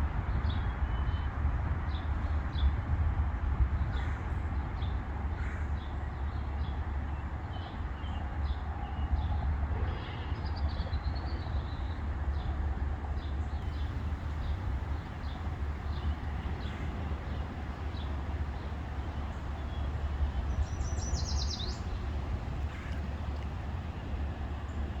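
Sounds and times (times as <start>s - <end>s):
small songbirds chirping: 13.2s - 25.0s
steady low rumble: 13.6s - 25.0s.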